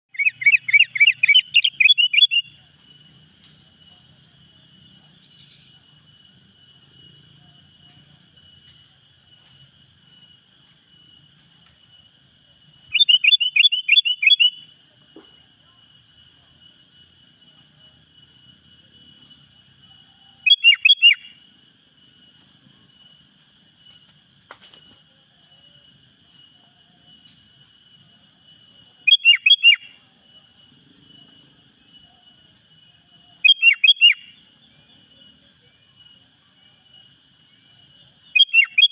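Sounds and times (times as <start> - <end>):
bulbul chirping: 0.1 - 2.5, 12.9 - 14.6, 29.1 - 29.9, 33.4 - 34.3, 38.4 - 38.9
faint high-pitched whine: 0.1 - 38.9.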